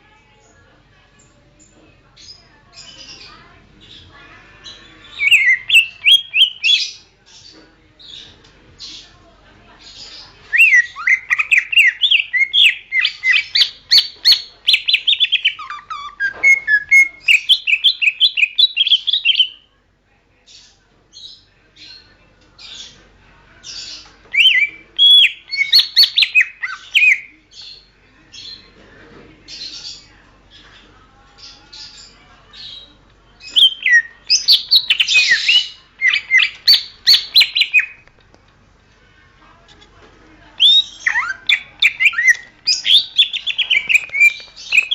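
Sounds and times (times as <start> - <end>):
bird warbling and chattering: 2.2 - 9.1, 9.8 - 19.7, 23.6 - 28.6, 31.4 - 38.0, 40.6 - 44.9.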